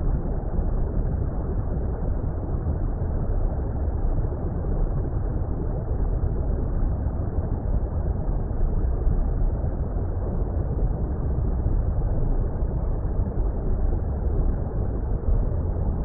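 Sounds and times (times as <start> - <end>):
muffled underwater rumble: 0.0 - 16.0.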